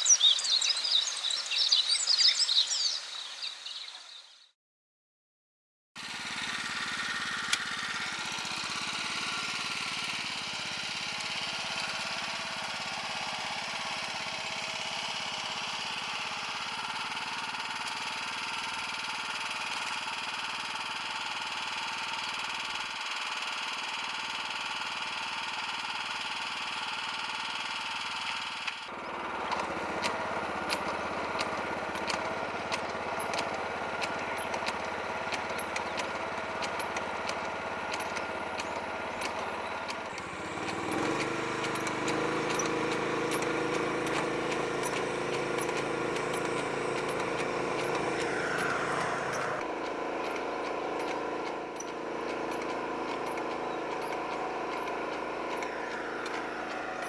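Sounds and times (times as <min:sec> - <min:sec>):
small engine running: 0:06.0 - 0:57.0
sharp clicks: 0:29.5 - 0:56.8.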